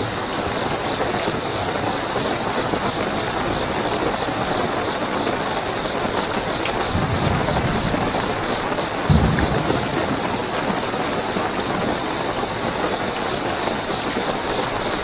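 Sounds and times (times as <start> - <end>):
cricket trill: 0.0 - 15.0
heavy rainfall: 0.0 - 15.0
low rumbles: 6.7 - 12.0.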